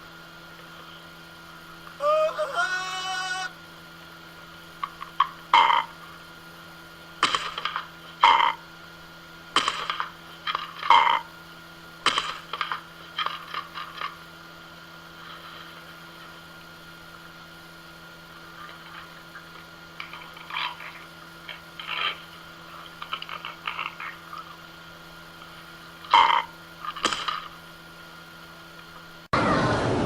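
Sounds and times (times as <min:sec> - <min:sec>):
electrical hum: 0:00.0 - 0:30.0
rattling animal calls: 0:04.8 - 0:06.2, 0:18.5 - 0:24.7, 0:26.0 - 0:27.6.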